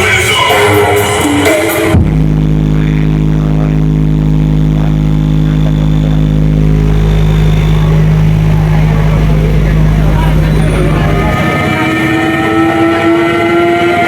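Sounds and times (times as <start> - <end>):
loud music from sound system: 0.0 - 14.0
engine idling: 4.8 - 14.0.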